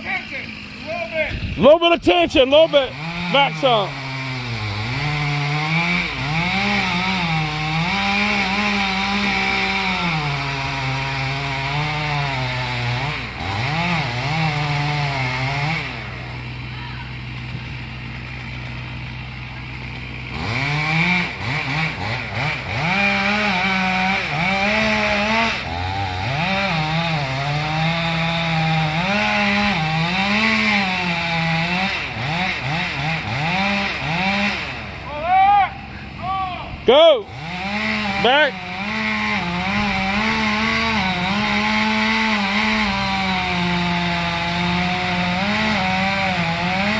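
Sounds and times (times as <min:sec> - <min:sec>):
chainsaw cutting wood: 0:00.0 - 0:35.2, 0:36.8 - 0:46.9.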